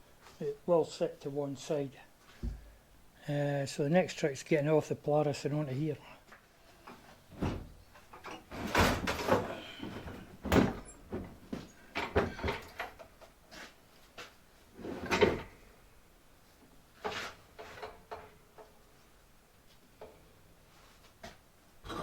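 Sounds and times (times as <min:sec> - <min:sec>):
metal clunks and scraping: 0:06.8 - 0:13.7, 0:14.8 - 0:15.6, 0:17.0 - 0:18.7.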